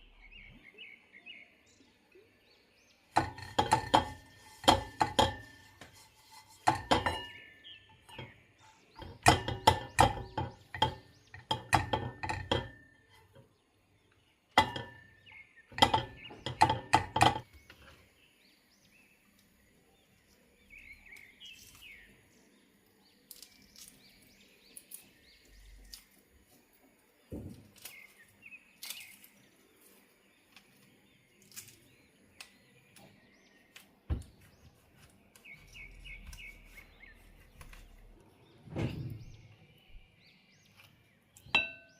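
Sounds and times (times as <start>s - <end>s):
dishes and cutlery clinking: 3.1s - 13.4s, 14.6s - 17.5s, 41.6s - 41.9s.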